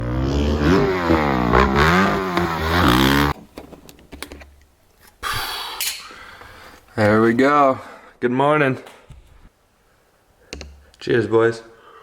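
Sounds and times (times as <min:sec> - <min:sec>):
dirt bike engine revving: 0:00.0 - 0:03.4.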